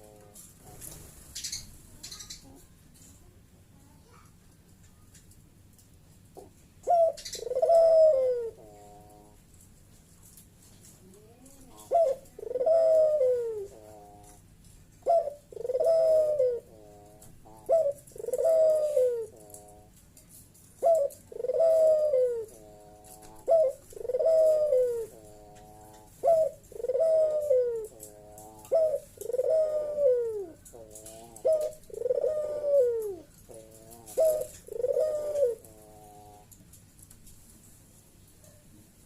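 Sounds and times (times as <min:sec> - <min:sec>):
dove cooing: 0:00.0 - 0:02.7, 0:06.4 - 0:09.4, 0:11.0 - 0:20.0, 0:20.7 - 0:36.6.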